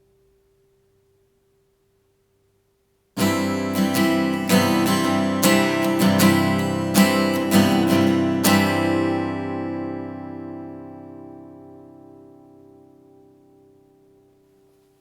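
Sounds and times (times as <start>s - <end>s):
acoustic guitar strumming: 3.2s - 14.5s.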